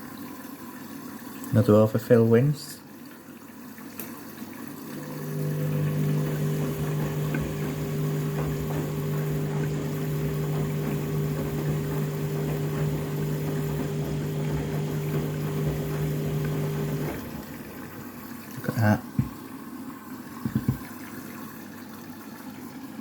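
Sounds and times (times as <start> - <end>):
washing machine pump humming: 4.7 - 21.7
water sloshing: 4.9 - 18.4.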